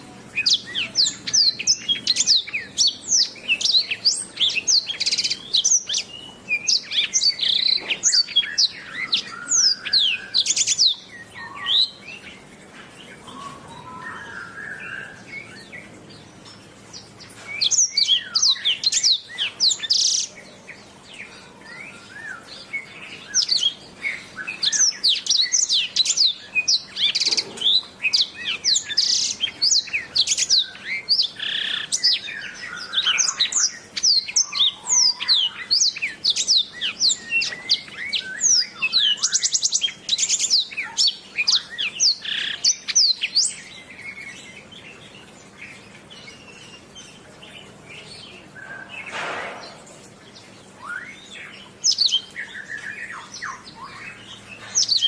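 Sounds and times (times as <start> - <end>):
canary chirps and trills: 0.0 - 55.0.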